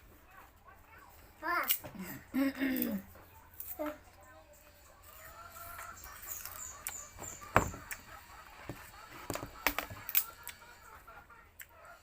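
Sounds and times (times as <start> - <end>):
chickens clucking: 2.0 - 12.0
sugarcane cracking as bitten: 9.6 - 10.6.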